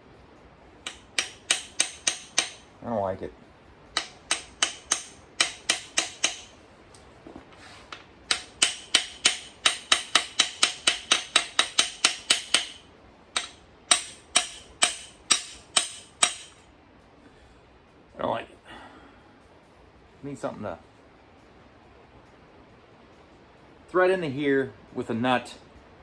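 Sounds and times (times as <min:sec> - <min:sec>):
hammer tapping on metal: 0:00.8 - 0:02.7, 0:04.0 - 0:06.6, 0:07.9 - 0:16.6.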